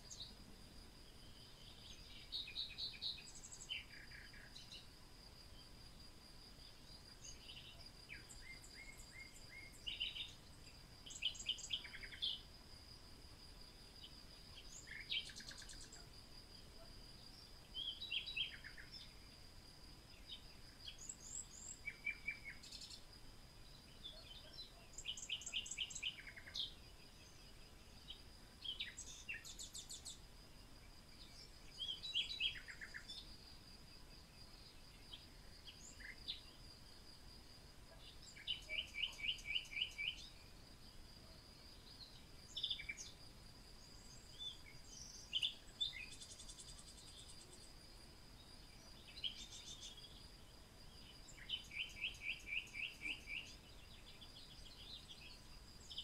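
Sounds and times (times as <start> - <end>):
wild birds chirping and trilling: 0.0 - 56.0
high-pitched insect-like whine: 43.8 - 50.4.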